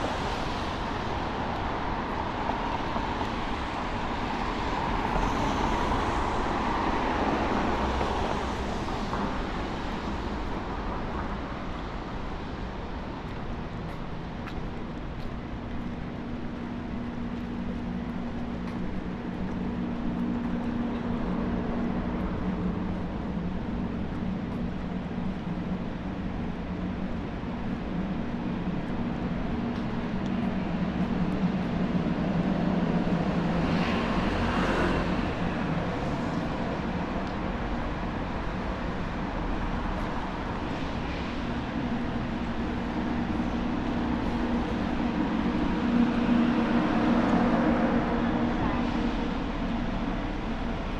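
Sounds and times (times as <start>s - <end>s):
low engine hum: 0.0s - 50.9s
wash of traffic in rain: 0.0s - 50.9s.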